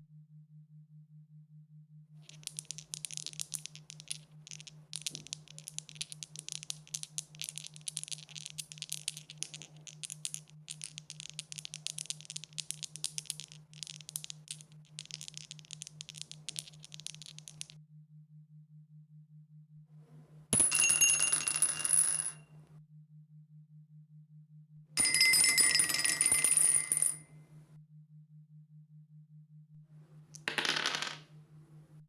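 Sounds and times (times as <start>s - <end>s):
dice rattling: 2.2s - 17.8s, 30.3s - 31.5s.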